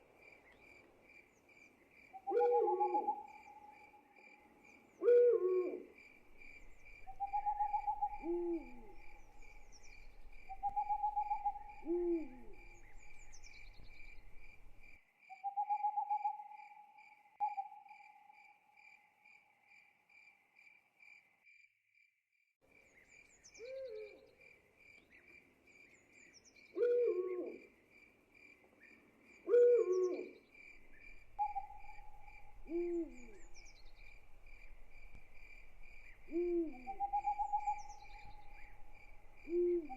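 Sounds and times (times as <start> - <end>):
pulsing cricket chorus: 0.1 - 15.0, 27.6 - 39.9
owl hooting: 2.2 - 4.0, 5.0 - 6.0, 7.0 - 14.1, 15.4 - 16.8, 23.6 - 24.3, 26.8 - 27.6, 29.5 - 34.3, 36.0 - 39.9.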